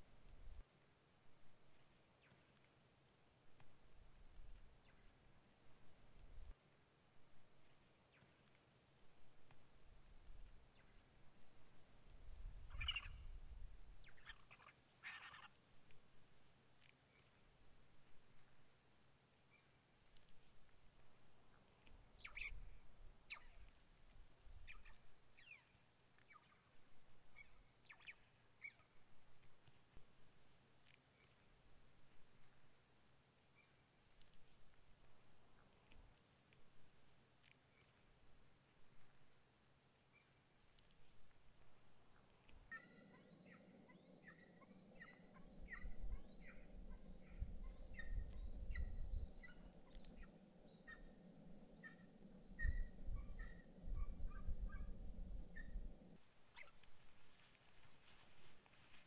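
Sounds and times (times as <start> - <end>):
faint high bird calls: 2.0 - 2.7, 4.5 - 5.2, 7.7 - 16.0, 19.4 - 20.5, 21.2 - 29.9, 33.5 - 33.9, 40.1 - 41.4, 42.0 - 59.0
bird chirping with upward sweeps: 12.7 - 13.2, 22.2 - 22.6, 27.4 - 28.8, 42.7 - 56.9.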